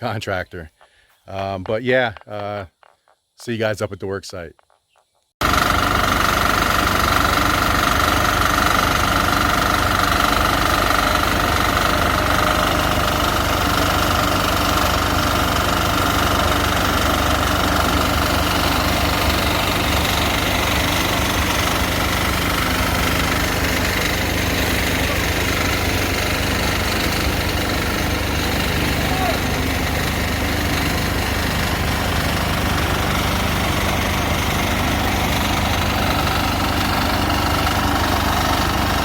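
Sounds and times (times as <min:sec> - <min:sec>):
concrete mixer engine running: 0:05.4 - 0:39.0.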